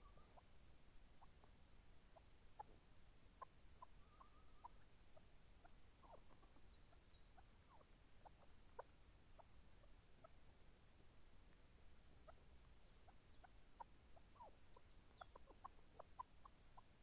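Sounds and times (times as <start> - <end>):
partridge short squeaky calls: 3.4 - 4.8, 5.6 - 8.9, 13.3 - 16.9.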